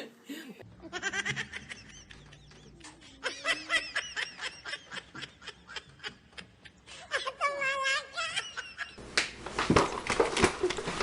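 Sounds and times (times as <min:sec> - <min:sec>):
high-pitched laughter: 0:00.7 - 0:09.0.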